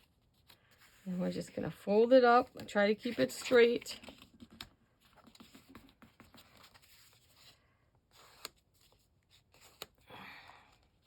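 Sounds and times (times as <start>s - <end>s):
paper envelope rustling: 2.4s - 10.0s.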